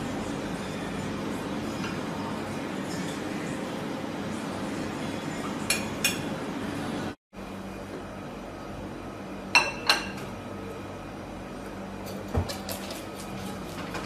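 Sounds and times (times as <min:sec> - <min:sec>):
tableware clinking: 0:09.6 - 0:10.3.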